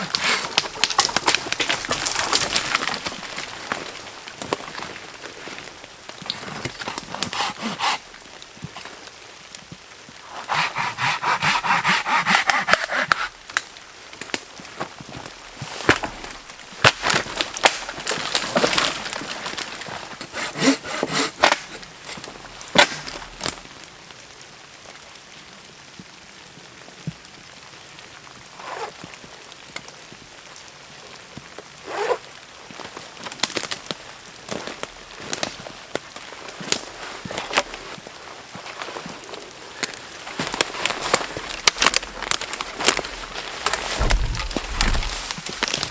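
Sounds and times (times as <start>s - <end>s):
wood cracking and snapping: 0.0s - 9.0s, 10.5s - 23.7s, 33.2s - 38.0s, 39.8s - 45.9s
sawing strokes: 7.0s - 8.0s, 10.3s - 13.3s, 20.2s - 22.2s
rain hissing: 41.0s - 45.9s.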